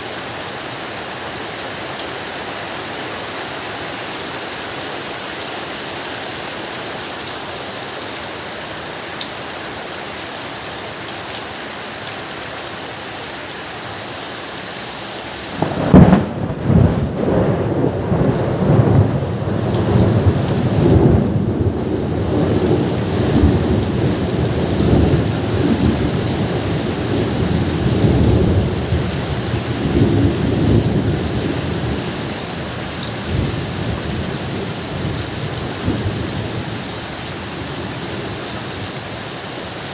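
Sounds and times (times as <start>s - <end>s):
steady rain falling: 0.0s - 39.9s
rumbling thunder: 15.5s - 32.1s.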